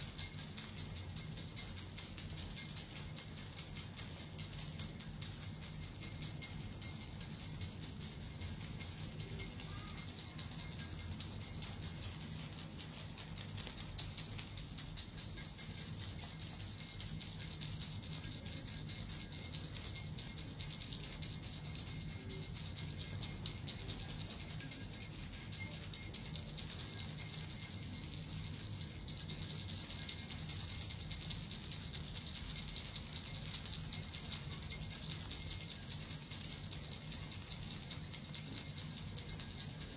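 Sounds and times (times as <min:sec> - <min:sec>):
jingle bells shaken: 0:00.0 - 0:39.9.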